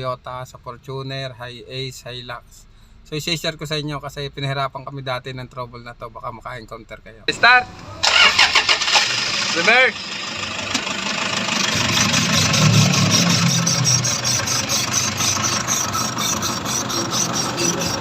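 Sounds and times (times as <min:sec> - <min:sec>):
engine running: 0:07.3 - 0:18.0
rhythmic high-pitched squeak: 0:11.7 - 0:18.0.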